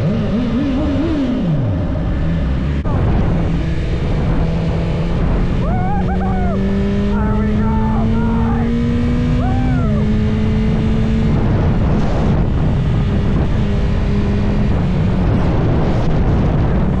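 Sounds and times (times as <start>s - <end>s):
motorcycle engine: 0.0s - 17.0s
wind buffeting microphone: 8.7s - 17.0s.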